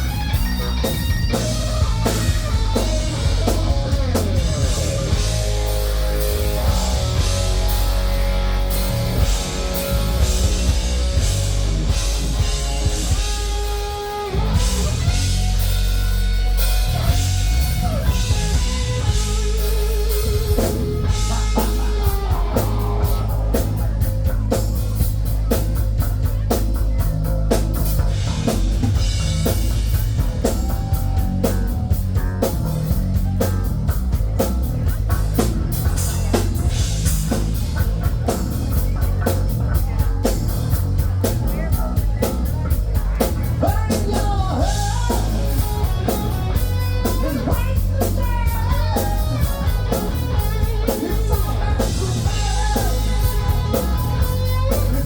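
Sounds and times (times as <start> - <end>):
guitar bending notes: 0.0 - 26.1
fast steady drum beat: 0.0 - 55.0
instrumental rock band: 0.0 - 55.0.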